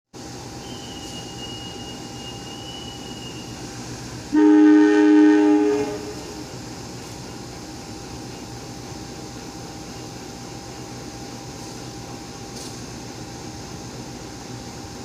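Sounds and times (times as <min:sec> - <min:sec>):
station background noise: 0:00.2 - 0:15.0
faint high whine: 0:00.5 - 0:06.6
train horn: 0:04.3 - 0:06.5.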